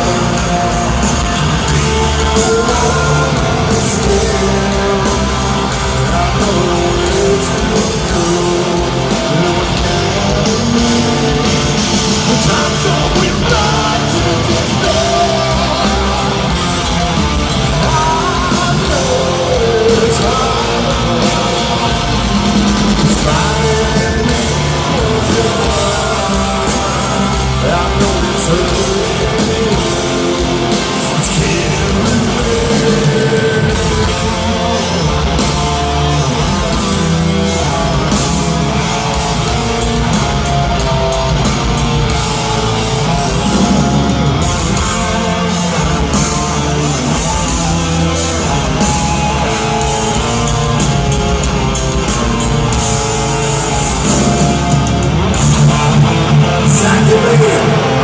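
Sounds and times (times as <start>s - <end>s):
person singing: 0.0s - 39.8s, 53.0s - 58.0s
bass: 0.0s - 58.0s
distorted electric guitars: 0.0s - 58.0s
drums: 0.0s - 58.0s.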